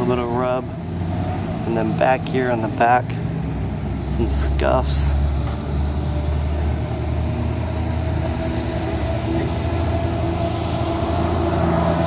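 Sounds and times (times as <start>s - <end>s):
mechanical drone with hum: 6.2s - 12.0s
thin constant whine: 6.8s - 12.0s.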